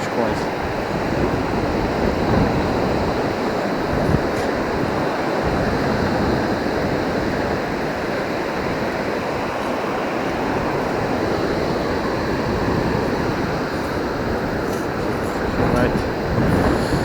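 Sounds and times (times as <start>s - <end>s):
ocean surf breaking: 0.0s - 17.0s
wind on microphone: 0.0s - 17.0s.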